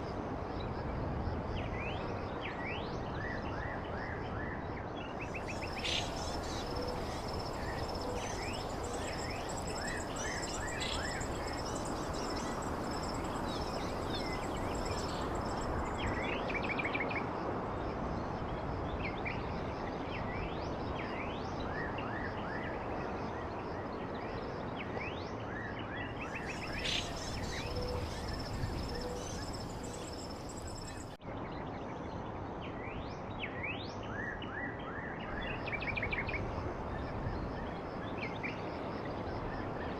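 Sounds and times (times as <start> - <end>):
small birds chirping: 5.2 - 16.5, 26.3 - 31.2
rushing background noise: 5.3 - 16.6, 26.3 - 31.2.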